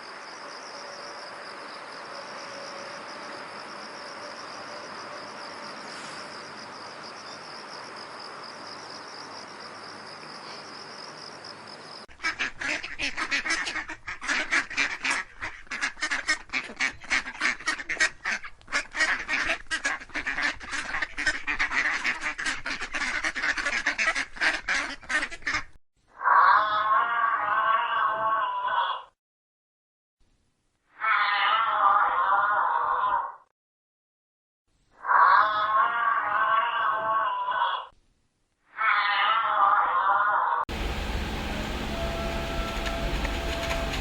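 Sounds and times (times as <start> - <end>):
crickets chirping: 0.0 - 12.1
waterfowl honking and quacking: 12.2 - 25.7.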